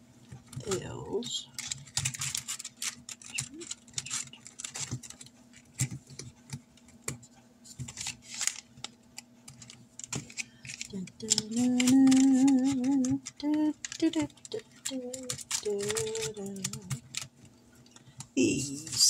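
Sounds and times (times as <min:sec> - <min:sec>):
paper rustling and clicks: 0:00.3 - 0:19.0
woman humming: 0:10.9 - 0:14.3, 0:14.9 - 0:17.0.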